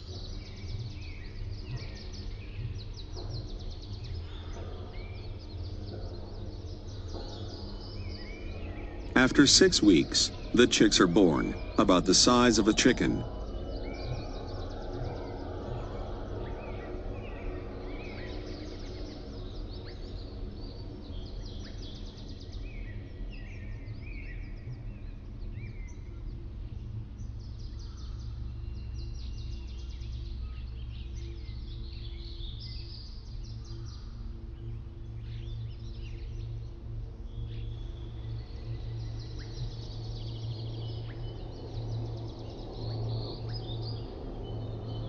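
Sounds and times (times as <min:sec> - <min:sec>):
small birds chirping and trilling: 0:00.0 - 0:45.0.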